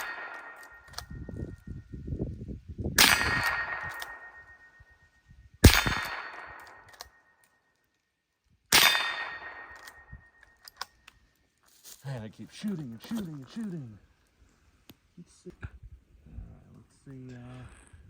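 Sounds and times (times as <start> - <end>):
rifle shots: 0.0 - 1.0, 3.0 - 4.6, 5.6 - 7.2, 8.7 - 10.2
steel target ringing: 3.0 - 5.0, 8.7 - 10.4.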